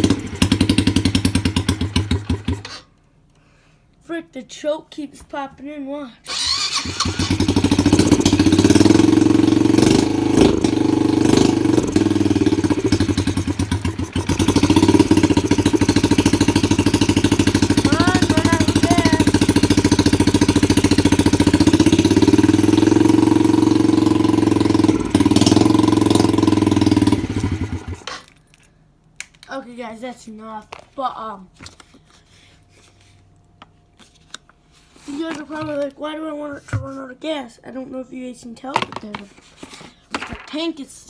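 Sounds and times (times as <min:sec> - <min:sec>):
dirt bike engine running: 0:00.0 - 0:02.7, 0:06.3 - 0:28.1.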